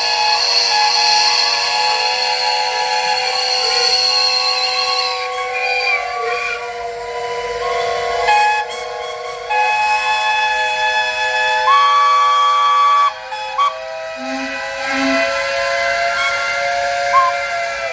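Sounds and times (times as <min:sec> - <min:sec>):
whistle pipes playing chords: 0:00.0 - 0:17.9.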